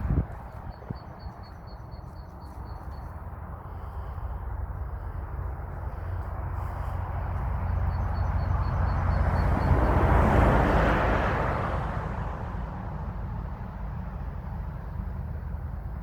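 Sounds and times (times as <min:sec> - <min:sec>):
vehicle driving past: 0:07.6 - 0:12.2.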